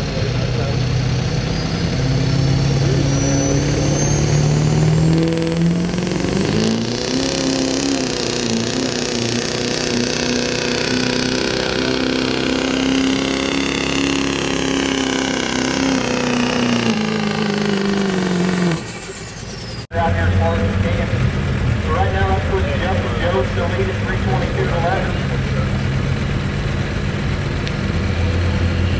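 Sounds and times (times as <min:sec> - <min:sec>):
diesel engine at full throttle: 0:00.0 - 0:28.9
high turbo whistle: 0:01.3 - 0:19.9.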